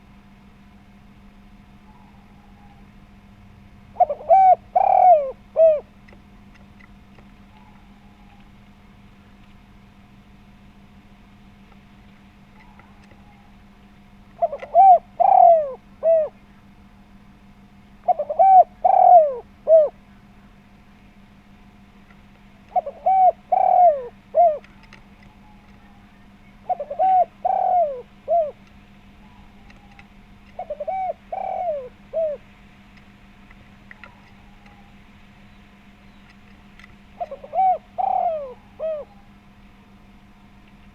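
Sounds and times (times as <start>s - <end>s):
faint steady hum: 0.0s - 40.9s
dove cooing: 1.6s - 6.6s, 7.2s - 9.0s, 12.4s - 20.5s, 22.5s - 39.7s.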